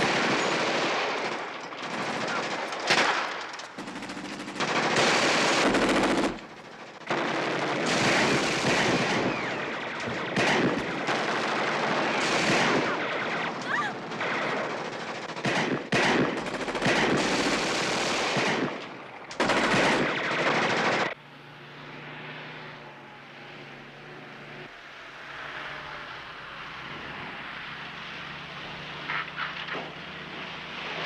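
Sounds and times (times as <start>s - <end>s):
automatic gunfire bursts: 0.0s - 6.5s, 7.1s - 18.8s, 19.4s - 21.2s.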